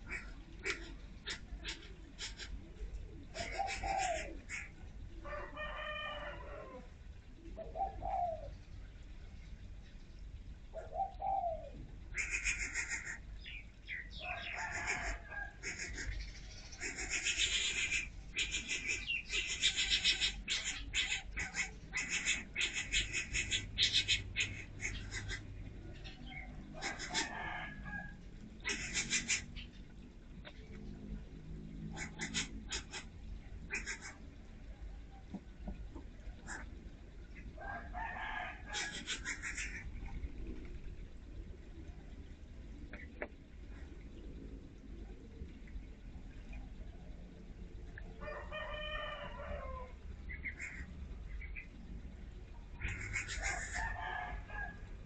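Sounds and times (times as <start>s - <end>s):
birds calling: 0.0s - 8.7s, 10.7s - 30.6s, 31.9s - 34.3s, 35.3s - 40.4s, 49.1s - 51.8s, 52.4s - 54.6s
birds chattering rapidly: 3.2s - 4.7s, 12.2s - 27.4s, 28.6s - 29.8s, 52.7s - 53.8s.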